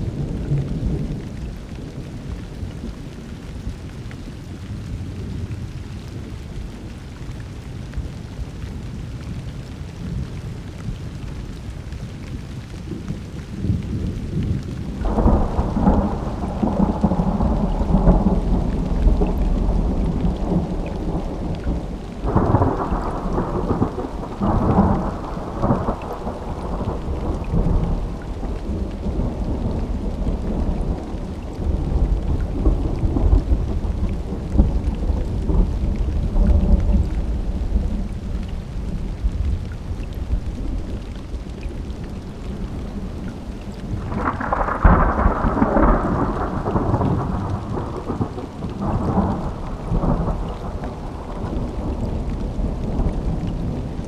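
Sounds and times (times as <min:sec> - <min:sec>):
crackling thunderclap: 0:00.0 - 0:03.0, 0:12.8 - 0:54.0
heavy rain: 0:00.0 - 0:54.0
rolling thunder: 0:13.6 - 0:54.0.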